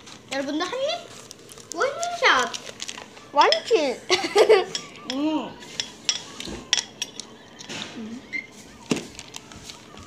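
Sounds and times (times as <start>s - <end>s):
chopsticks clinking against dishes: 4.4s - 7.8s.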